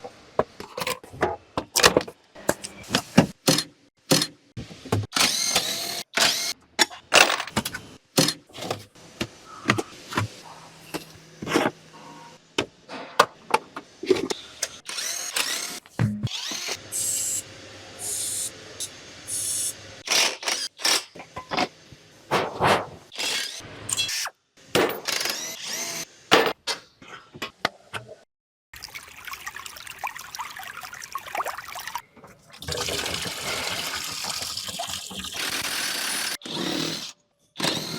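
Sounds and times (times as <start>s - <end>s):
power tool running: 5.1s - 6.6s, 14.3s - 21.2s, 23.1s - 24.0s, 25.0s - 26.2s, 35.2s - 37.9s.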